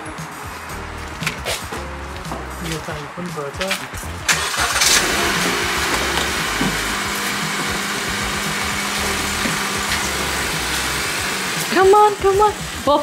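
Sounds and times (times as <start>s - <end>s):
pressure washer motor humming: 4.3s - 13.0s
water spray rushing: 4.5s - 13.0s.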